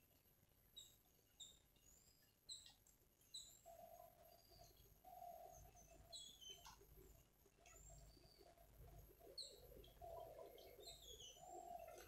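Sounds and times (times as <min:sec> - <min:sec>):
birds chirping: 0:00.7 - 0:12.0
low hooting bird calls: 0:03.3 - 0:06.8, 0:07.7 - 0:12.0.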